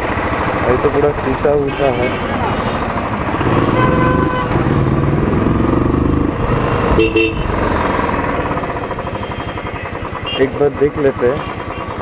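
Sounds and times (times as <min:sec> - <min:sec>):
motorcycle engine running: 0:00.0 - 0:12.0
vehicle horn honking: 0:01.6 - 0:04.8, 0:07.0 - 0:07.5, 0:09.0 - 0:10.7.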